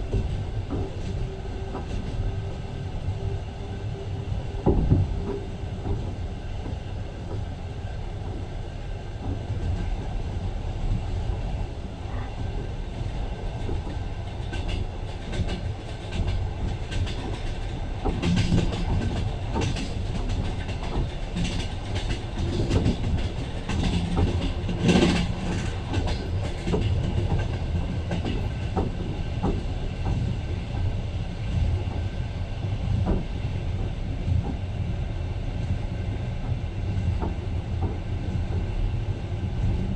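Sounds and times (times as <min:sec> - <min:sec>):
train carriage rumble: 0:00.0 - 0:39.9.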